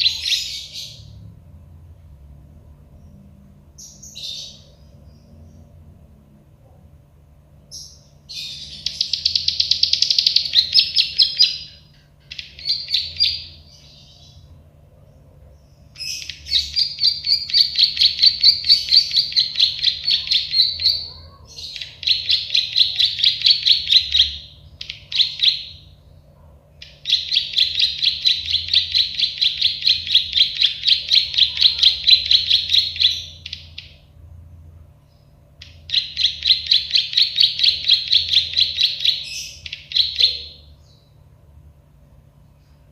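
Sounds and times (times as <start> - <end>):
bird singing high chips: 15.8 - 26.0.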